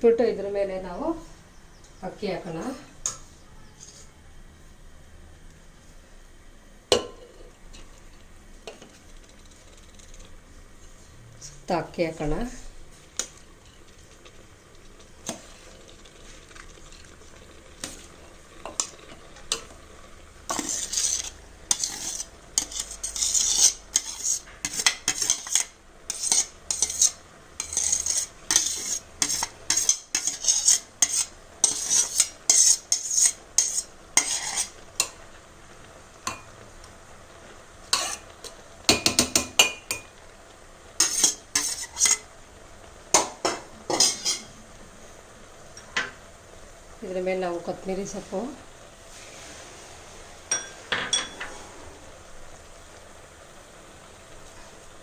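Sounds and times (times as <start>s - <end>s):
metal spoon scraping a pot: 3.0s - 4.1s, 20.5s - 35.2s, 37.9s - 38.3s, 41.0s - 42.2s, 43.9s - 44.5s.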